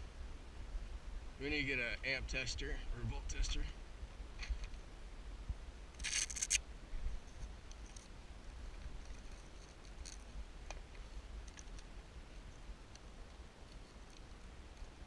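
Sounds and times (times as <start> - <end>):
steady low rumble: 0.0 - 15.0
scratchy rustle: 6.0 - 6.6.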